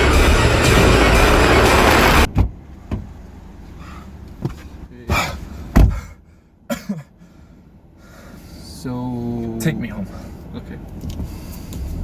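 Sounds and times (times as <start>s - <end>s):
background music: 0.0s - 2.3s
heavy thump: 1.8s - 3.1s, 5.7s - 6.1s
car door knocks and clicks: 2.3s - 3.2s, 5.7s - 6.1s.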